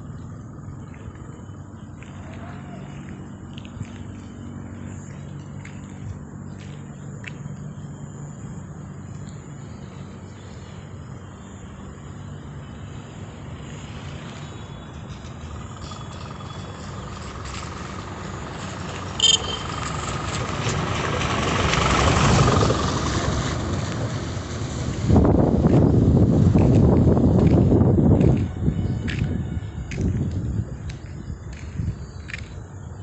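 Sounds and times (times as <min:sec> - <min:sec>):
road vehicle passing: 0:00.0 - 0:33.0
brief high-pitched sound: 0:19.2 - 0:19.8.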